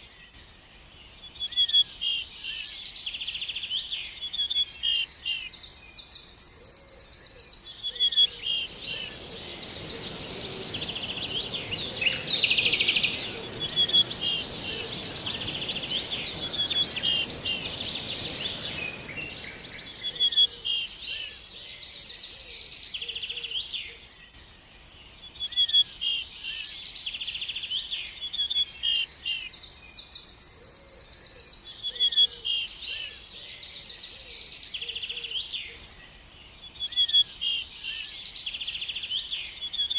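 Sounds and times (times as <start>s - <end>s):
songbirds chirping and trilling: 0.0s - 39.9s
steady high-pitched hiss: 7.4s - 23.0s.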